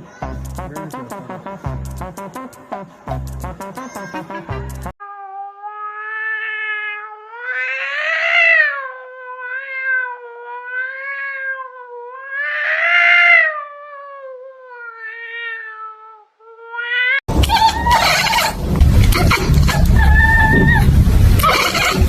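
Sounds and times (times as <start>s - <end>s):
cat yowling: 5.0s - 22.0s.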